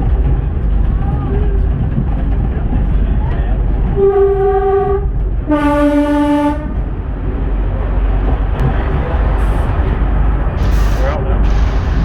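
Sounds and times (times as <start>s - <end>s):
diesel train engine rumble: 0.0s - 12.0s
two-tone train horn: 4.0s - 6.8s.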